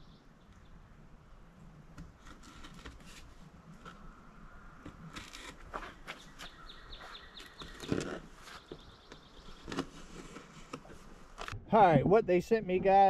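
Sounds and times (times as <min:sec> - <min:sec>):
bird chirping: 0:00.0 - 0:00.9, 0:05.8 - 0:10.5.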